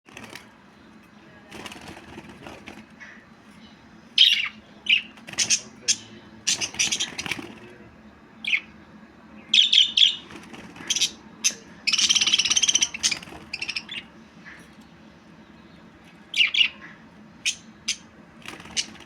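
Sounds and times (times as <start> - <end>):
rapid chattering warble: 0.1 - 19.0
budgerigar chirping: 4.2 - 7.5, 8.4 - 8.8, 9.4 - 14.6, 16.3 - 19.0.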